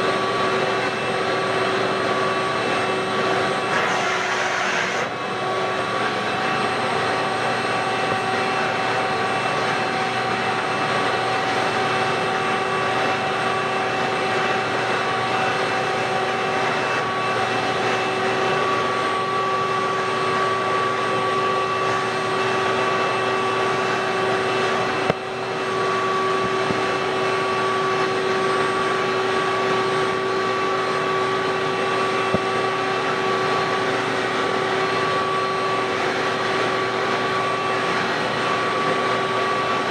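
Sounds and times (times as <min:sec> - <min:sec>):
floor cleaner motor whine: 0:00.0 - 0:39.9.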